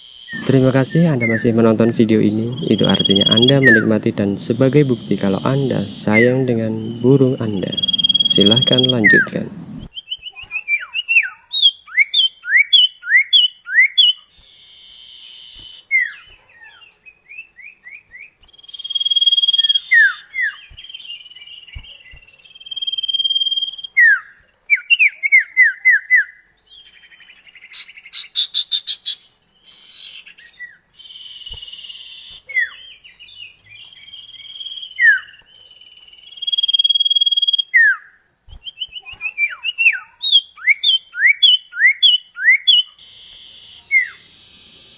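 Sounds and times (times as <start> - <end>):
bird singing whistled song: 0.3 - 10.4, 16.9 - 44.9
rapid buzzy bird trill: 0.4 - 9.9.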